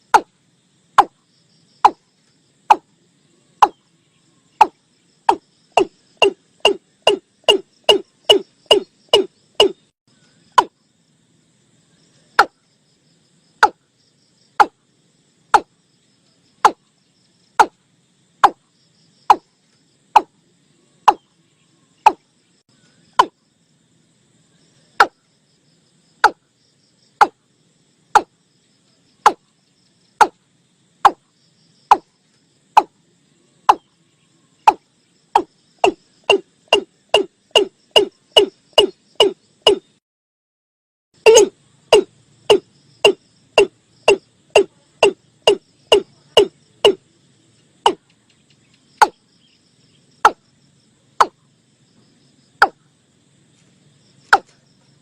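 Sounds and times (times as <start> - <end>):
bird calling hollow notes: 2.7 - 2.9, 3.6 - 3.8, 4.6 - 9.9, 13.6 - 13.8, 14.6 - 14.8, 18.4 - 18.6, 21.1 - 21.3, 22.0 - 22.3, 23.1 - 23.4, 26.2 - 26.4, 34.6 - 40.0, 41.2 - 47.0.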